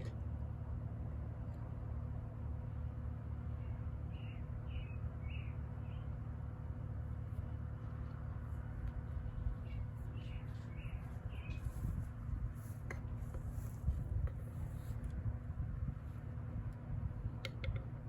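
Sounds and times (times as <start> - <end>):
steady low rumble: 0.0 - 18.0
small bird chirping: 3.6 - 6.1, 9.6 - 12.0.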